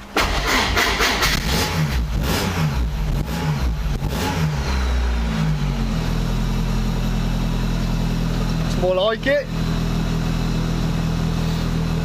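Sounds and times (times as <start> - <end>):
car engine starting and revving: 0.0 - 8.8
car engine idling: 0.0 - 12.0.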